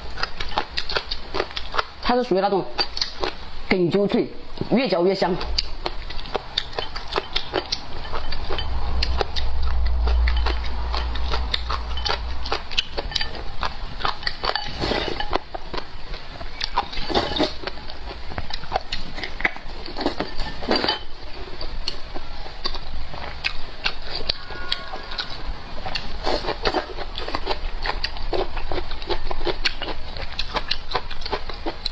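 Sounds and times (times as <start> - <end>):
crunching and chewing: 0.0 - 3.8, 5.2 - 31.9
low rumble: 7.8 - 14.4.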